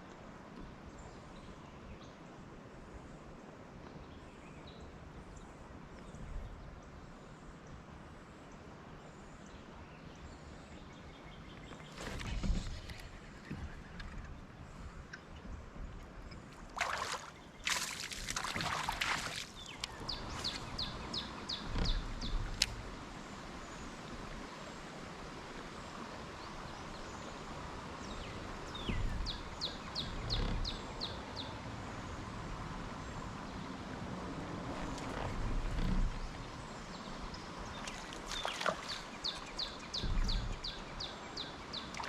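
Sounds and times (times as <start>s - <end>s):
rushing splashy noise: 16.8s - 19.7s
dull low knocks: 19.9s - 22.9s, 39.9s - 40.9s.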